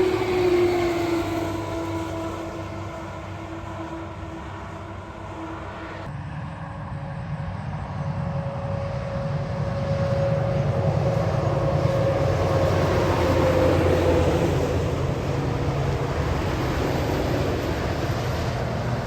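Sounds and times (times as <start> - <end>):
heavy truck engine rumble: 0.0 - 6.1.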